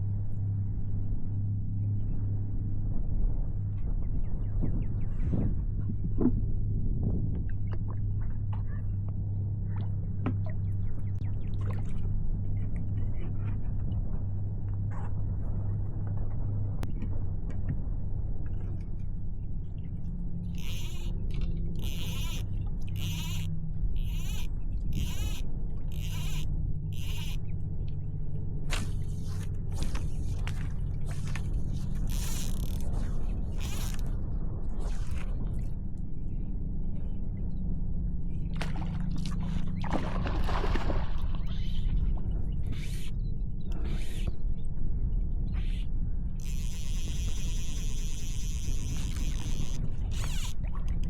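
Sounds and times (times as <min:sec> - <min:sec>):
wind buffeting microphone: 0:02.8 - 0:07.8.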